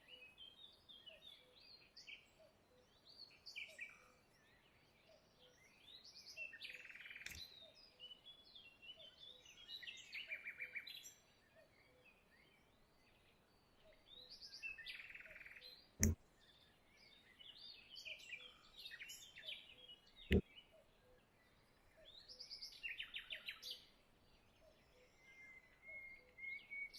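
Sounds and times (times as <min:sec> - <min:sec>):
songbirds chirping and singing: 0:00.0 - 0:26.9
sharp clicks: 0:16.0 - 0:16.2.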